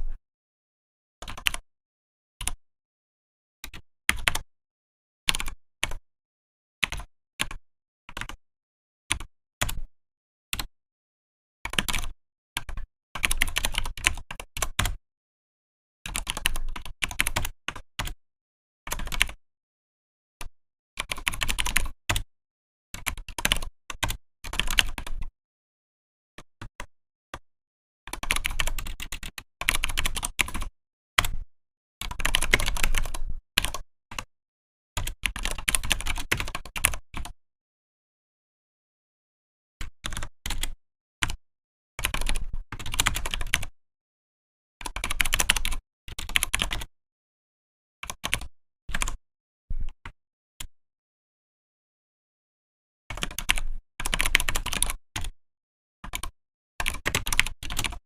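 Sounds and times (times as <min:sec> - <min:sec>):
keyboard typing: 0:28.1 - 0:31.3, 0:32.0 - 0:34.3, 0:42.0 - 0:43.7, 0:44.9 - 0:46.9, 0:48.1 - 0:49.2, 0:53.1 - 0:55.3.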